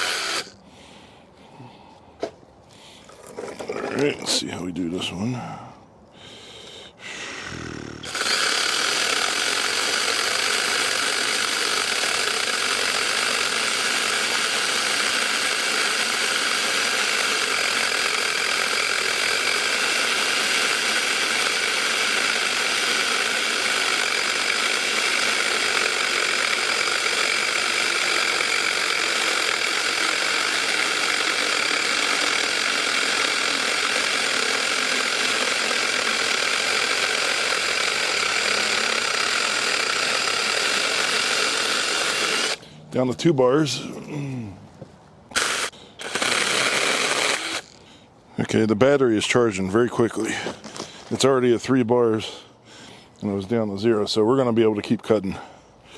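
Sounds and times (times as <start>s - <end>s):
mini chainsaw cutting log: 0.0s - 0.6s, 7.4s - 43.2s, 45.3s - 48.0s.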